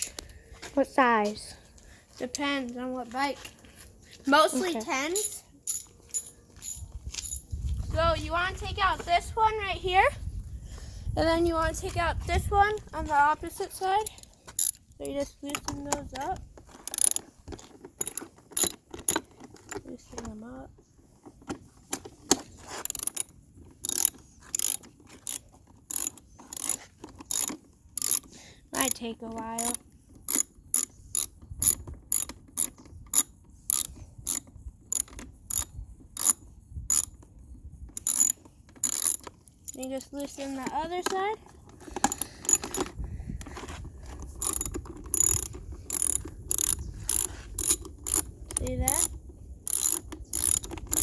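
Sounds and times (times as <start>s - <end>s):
ratchet wrench clicking: 14.0s - 14.9s, 15.5s - 17.3s, 18.0s - 19.2s, 22.8s - 29.0s, 29.6s - 37.3s, 38.0s - 40.4s, 42.0s - 43.0s, 44.4s - 51.0s.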